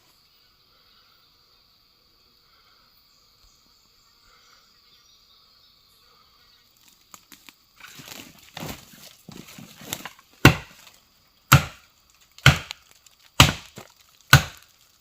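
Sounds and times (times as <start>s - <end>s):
insect-like hum: 0.0s - 15.0s
rustling and crackling: 6.8s - 11.0s, 12.0s - 15.0s.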